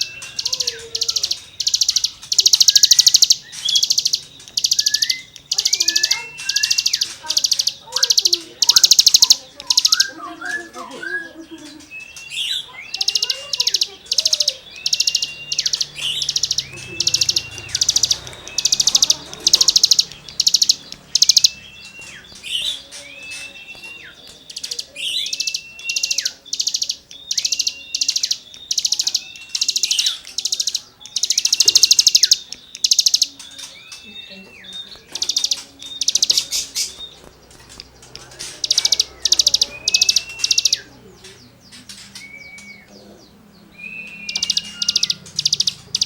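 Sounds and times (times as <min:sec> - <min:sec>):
songbird whistled notes: 0:00.0 - 0:37.4, 0:38.1 - 0:46.0
songbird rasping buzzy phrases: 0:00.0 - 0:46.0.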